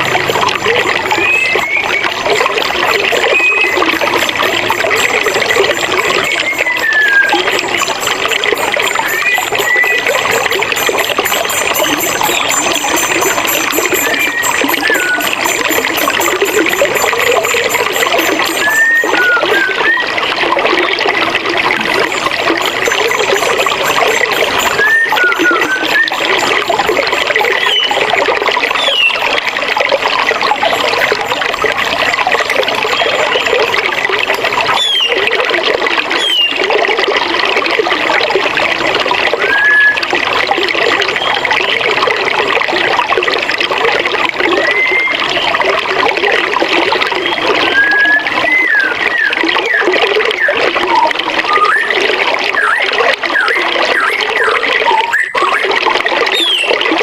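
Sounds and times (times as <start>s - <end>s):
bird chirps and whistles: 1.1s - 2.2s, 3.2s - 4.3s, 6.0s - 7.9s, 8.8s - 20.1s, 23.5s - 26.6s, 27.4s - 28.1s, 28.8s - 29.3s, 34.8s - 35.2s, 36.2s - 36.6s, 47.7s - 51.9s, 53.4s - 55.6s, 56.3s - 56.7s.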